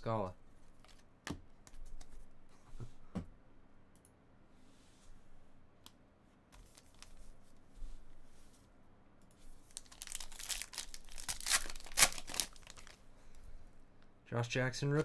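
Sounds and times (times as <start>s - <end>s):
foil wrapper crinkling: 9.7s - 13.0s.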